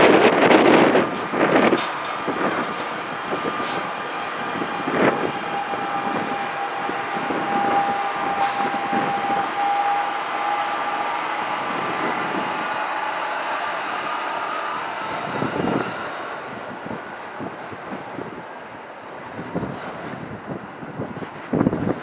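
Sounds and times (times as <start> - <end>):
high-pitched whine: 0.0 - 17.0
train cars rolling past: 0.0 - 22.0.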